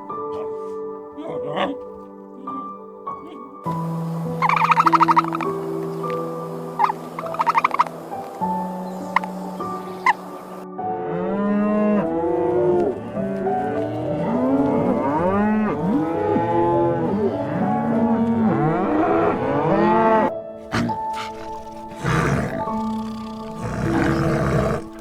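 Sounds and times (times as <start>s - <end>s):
cattle mooing: 20.7s - 25.0s.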